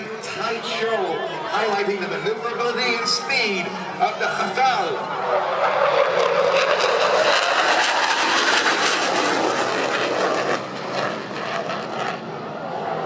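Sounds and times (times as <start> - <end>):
fighter jet flying past: 3.0 - 13.0.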